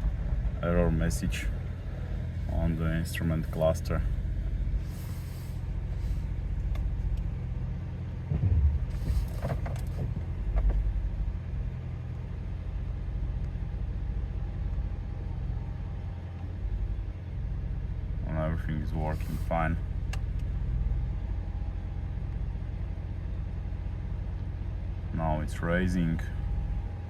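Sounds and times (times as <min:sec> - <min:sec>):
diesel engine idling: 0:00.0 - 0:27.0
short air hisses: 0:04.8 - 0:06.2.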